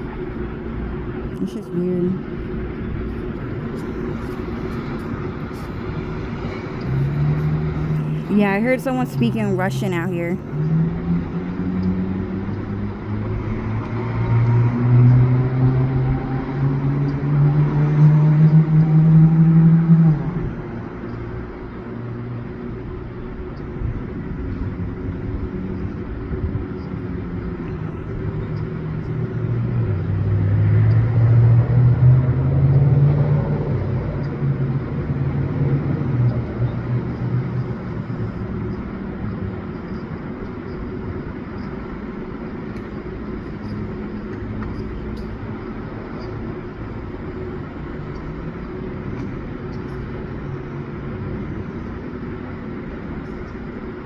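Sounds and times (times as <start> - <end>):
vehicle engine rumble: 0.0 - 16.8, 20.2 - 54.0.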